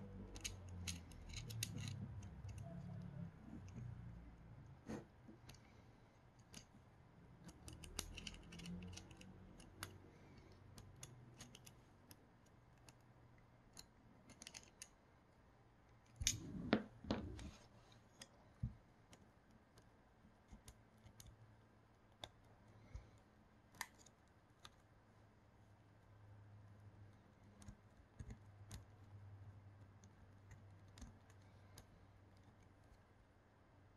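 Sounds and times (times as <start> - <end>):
clicks of small parts and tools: 0.2 - 2.7, 7.4 - 12.2, 13.7 - 15.0.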